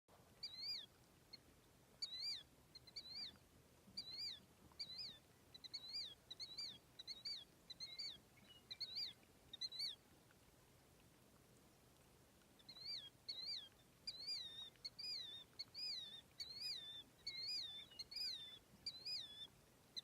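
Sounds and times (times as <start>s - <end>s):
bird chirping: 0.4s - 0.9s, 2.0s - 3.4s, 4.0s - 10.0s, 12.6s - 20.0s.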